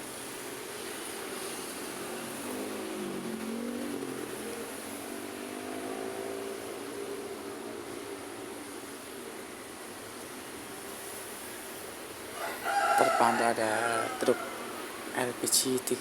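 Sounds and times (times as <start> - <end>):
traffic hiss: 0.0 - 16.0
passing vehicle engine: 1.0 - 10.6.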